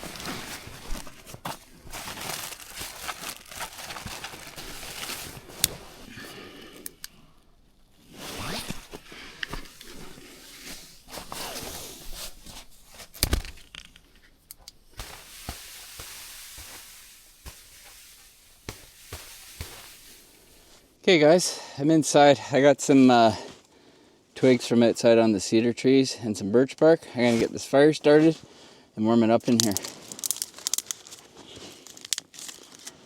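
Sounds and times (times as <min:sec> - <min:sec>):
firewood rustling and crunching: 0:00.0 - 0:21.0, 0:29.5 - 0:33.0.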